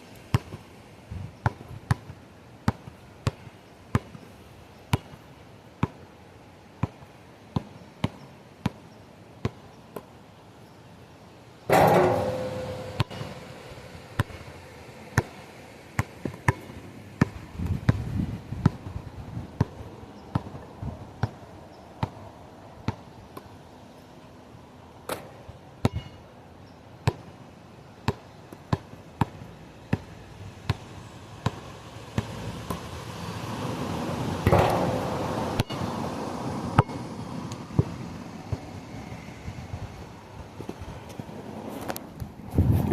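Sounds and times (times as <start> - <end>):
sharp knocks: 11.7 - 13.6, 34.5 - 35.8
wind buffeting microphone: 17.4 - 19.6, 42.2 - 42.9.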